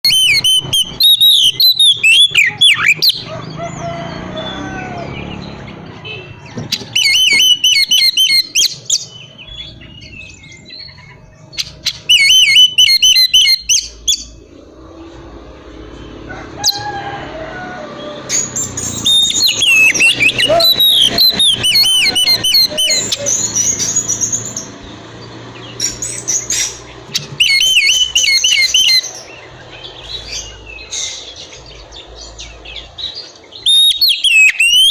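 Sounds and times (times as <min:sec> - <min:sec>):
bird whistling and trilling: 0:00.0 - 0:03.3, 0:06.4 - 0:14.4, 0:18.4 - 0:24.6, 0:25.8 - 0:31.4, 0:33.5 - 0:34.9.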